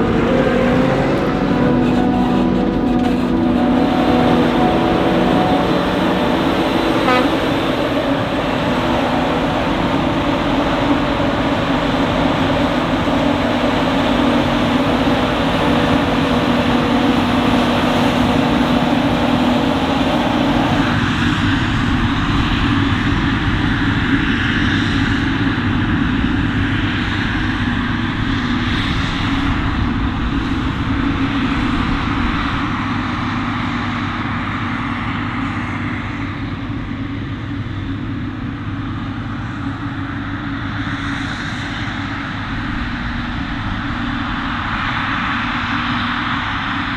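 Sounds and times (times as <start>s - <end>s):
harvesting machinery hum: 0.0s - 21.0s
deep machinery rumble: 0.0s - 24.4s.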